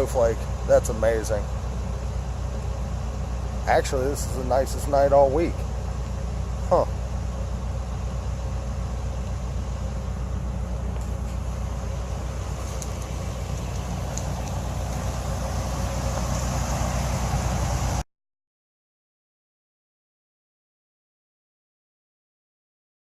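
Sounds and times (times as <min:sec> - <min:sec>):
car engine hum and road noise: 0:00.0 - 0:18.0.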